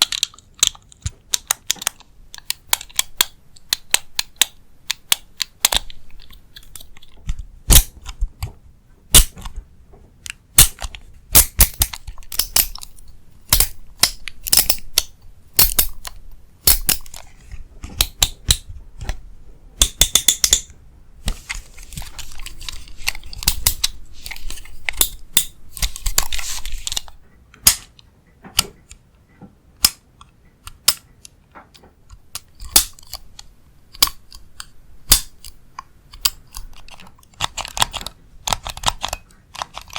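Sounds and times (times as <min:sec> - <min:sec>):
tapping and clicking on small objects: 0:00.0 - 0:17.2, 0:19.8 - 0:21.4, 0:29.8 - 0:39.9
scratchy rustling: 0:21.3 - 0:25.0, 0:25.8 - 0:27.1.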